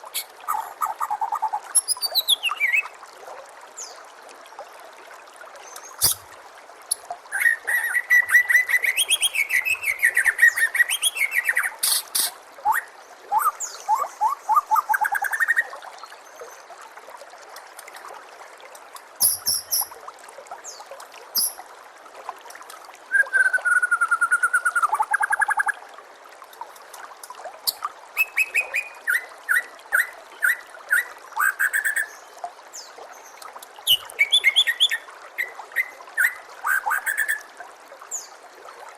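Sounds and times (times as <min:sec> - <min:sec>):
bird singing trills and whistles: 0:00.2 - 0:02.9, 0:07.4 - 0:15.7, 0:19.2 - 0:19.9, 0:21.4 - 0:21.6, 0:23.1 - 0:25.6, 0:28.2 - 0:32.2, 0:33.9 - 0:37.4.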